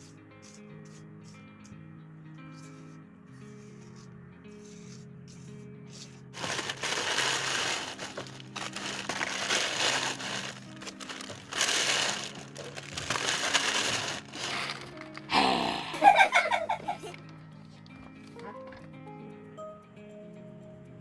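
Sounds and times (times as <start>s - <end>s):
background music: 0.0s - 21.0s
loud gritty crunching: 6.4s - 15.3s.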